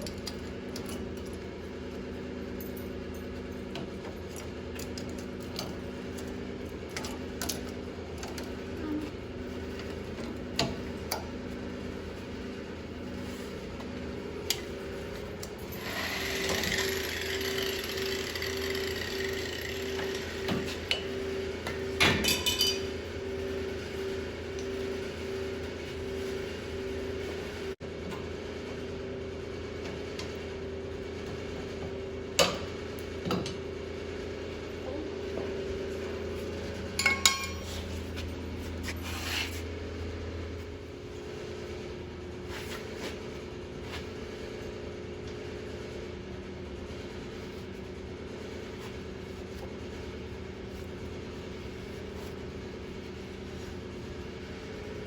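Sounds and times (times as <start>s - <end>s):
constant low hum: 0.0s - 55.0s
hand tools clinking on metal: 22.2s - 22.9s.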